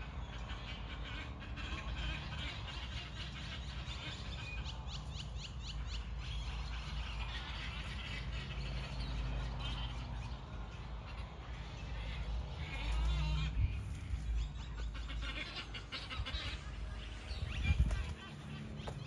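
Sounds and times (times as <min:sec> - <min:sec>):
birds chirping: 0:00.0 - 0:19.0
steady low rumble: 0:10.1 - 0:19.0.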